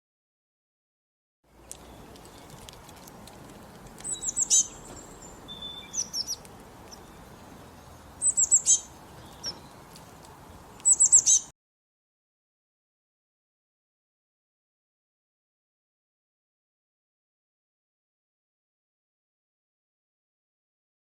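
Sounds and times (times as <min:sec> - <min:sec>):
songbird calling: 0:01.6 - 0:11.5
single bird chirps: 0:04.0 - 0:07.2, 0:08.2 - 0:09.8, 0:10.8 - 0:11.5.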